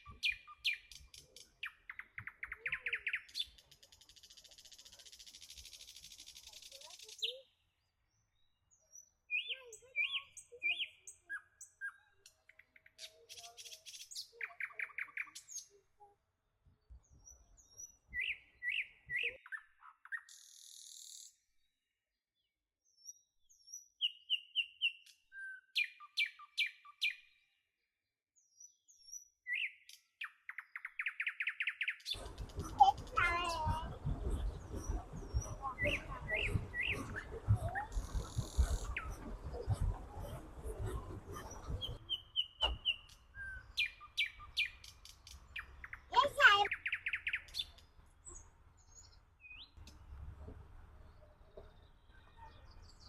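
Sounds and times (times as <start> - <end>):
songbirds chirping and singing: 0.0 - 7.5, 8.4 - 15.8, 28.5 - 50.0.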